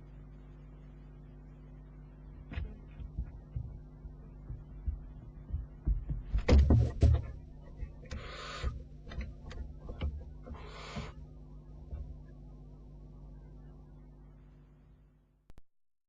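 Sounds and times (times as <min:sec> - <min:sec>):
steady low hum: 0:00.0 - 0:15.6
loud knocks and thumps: 0:02.4 - 0:11.2
owlet hissing calls: 0:08.1 - 0:08.8, 0:10.5 - 0:11.2.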